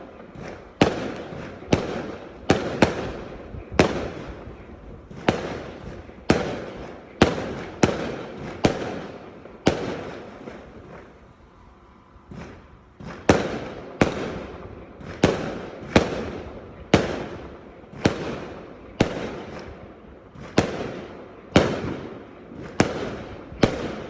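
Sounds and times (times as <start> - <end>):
fireworks bangs echoing: 0.0 - 11.4, 12.2 - 24.0.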